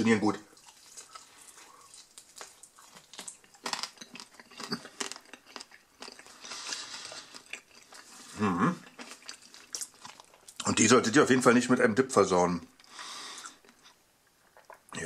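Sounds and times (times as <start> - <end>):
crunchy chewing: 0.5 - 10.8.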